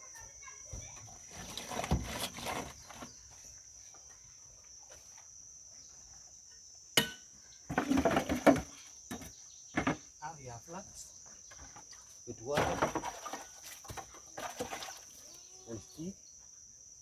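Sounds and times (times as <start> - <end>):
cricket trill: 0.0 - 17.0
scraping: 1.2 - 3.2.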